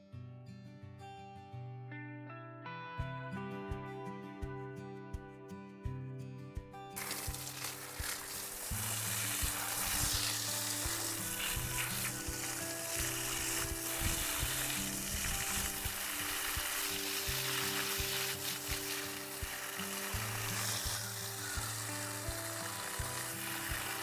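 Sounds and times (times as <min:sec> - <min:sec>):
background music: 0:02.0 - 0:24.0
food sizzling in a pan: 0:07.0 - 0:24.0.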